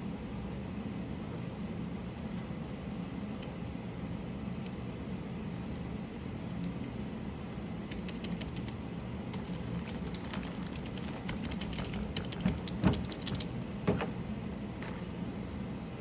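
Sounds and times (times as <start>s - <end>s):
steady low hum: 0.0s - 16.0s
mechanical keyboard keys clacking: 7.9s - 13.5s.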